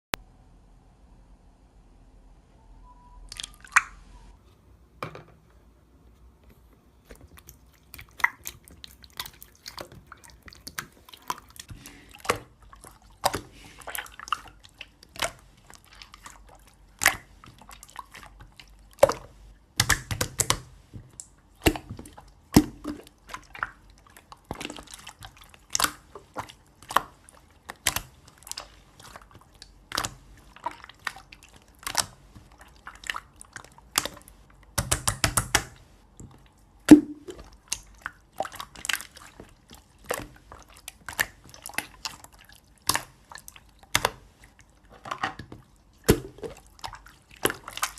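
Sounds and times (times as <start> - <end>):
wet clicks and crackling pops: 19.8 - 23.5, 24.5 - 30.2, 31.0 - 32.2, 33.0 - 44.2.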